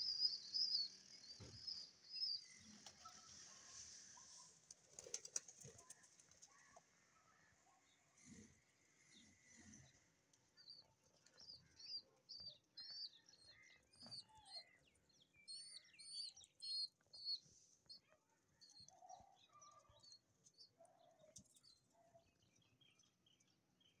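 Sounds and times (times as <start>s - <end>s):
high-pitched bird chirps: 15.4s - 17.4s.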